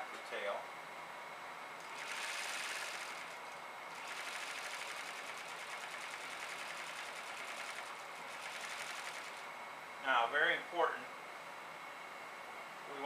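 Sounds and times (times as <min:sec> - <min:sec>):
sewing machine stitching: 0:01.8 - 0:09.5.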